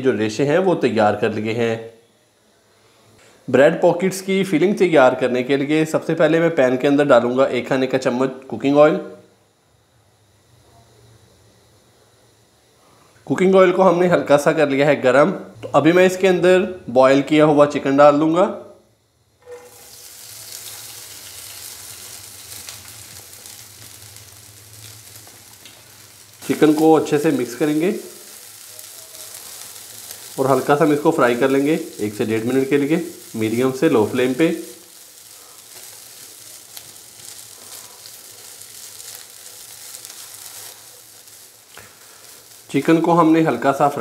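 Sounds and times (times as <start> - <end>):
chicken sizzling in hot oil: 19.4 - 44.0.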